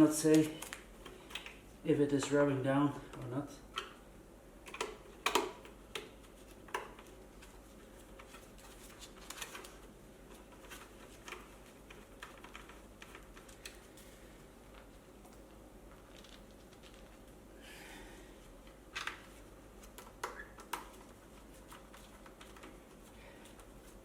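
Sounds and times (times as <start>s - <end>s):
rustling: 6.2s - 17.5s.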